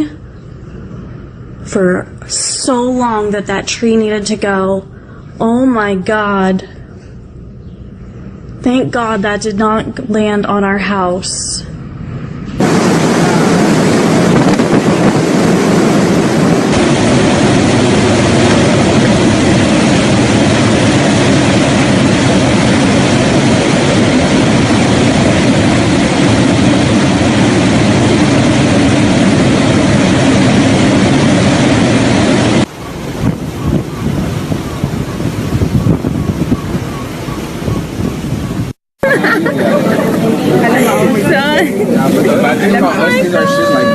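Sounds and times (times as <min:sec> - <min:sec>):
wind blasting across microphone: 0:12.2 - 0:43.9.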